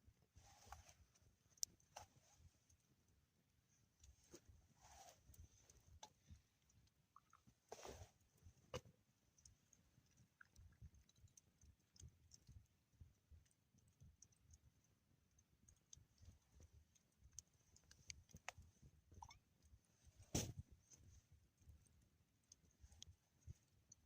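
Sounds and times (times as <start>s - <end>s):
faint small clicks: 5.0s - 24.0s.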